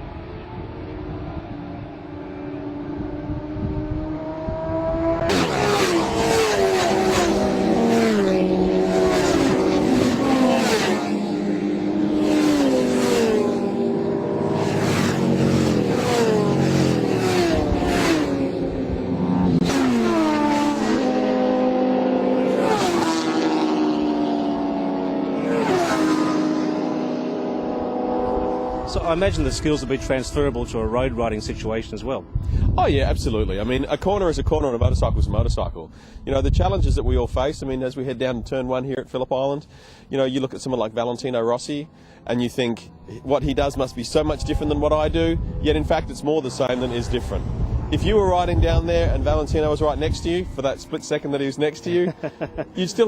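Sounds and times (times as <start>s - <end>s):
motorcycle engines revving: 0.0s - 34.8s, 39.8s - 53.0s.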